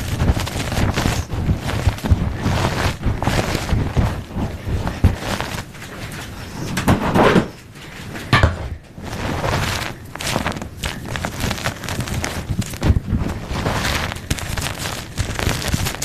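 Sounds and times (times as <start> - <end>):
chalk crunching and crumbling: 0.0 - 5.7, 9.0 - 16.0.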